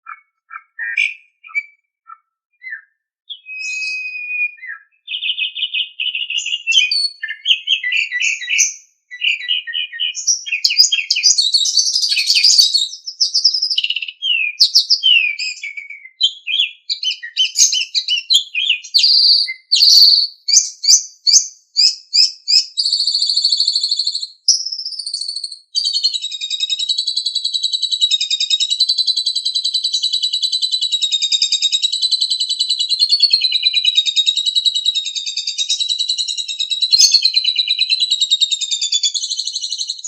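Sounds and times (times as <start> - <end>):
starling singing: 0.0 - 26.5, 36.5 - 39.2.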